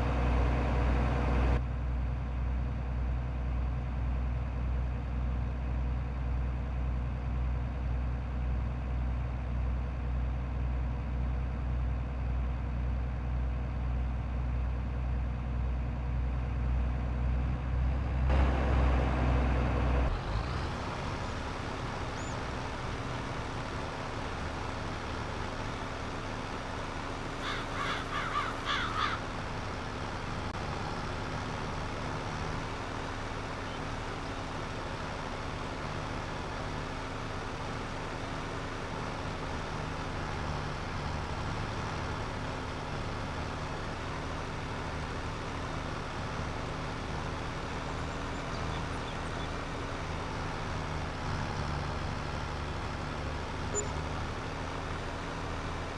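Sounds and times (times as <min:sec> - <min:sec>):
tractor engine running: 0:00.0 - 0:55.9
bird calling: 0:20.8 - 0:23.4, 0:27.2 - 0:29.4, 0:53.8 - 0:54.1.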